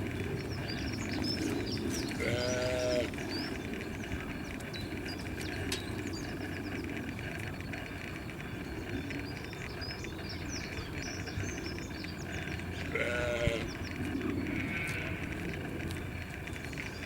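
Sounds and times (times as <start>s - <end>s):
outdoor background noise: 0.0s - 17.0s
farm animal bleating: 2.1s - 3.2s, 12.8s - 13.8s, 14.4s - 15.5s.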